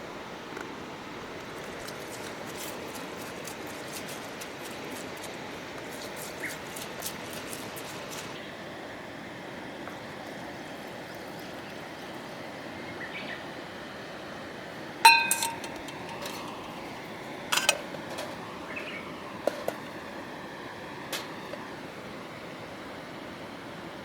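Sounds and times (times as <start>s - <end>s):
steady background hiss: 0.0s - 24.0s
metal camp gear clinking: 15.1s - 16.9s, 17.5s - 18.4s.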